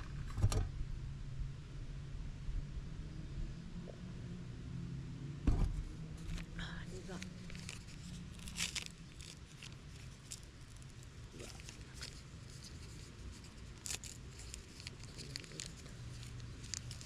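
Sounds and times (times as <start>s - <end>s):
steady low hum: 0.0s - 17.0s
small clicks and rustles: 6.2s - 17.0s.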